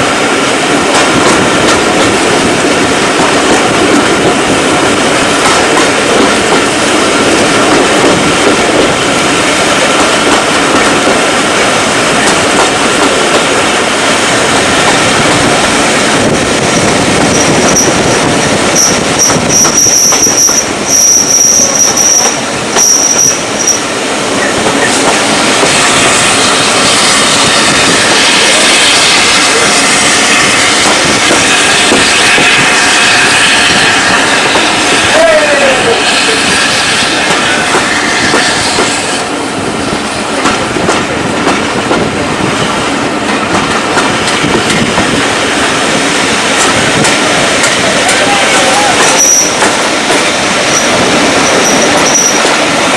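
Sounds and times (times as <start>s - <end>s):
train rolling along rails: 0.0s - 52.9s
high-pitched wheel squeal: 18.7s - 23.8s, 49.0s - 49.6s, 50.7s - 52.5s.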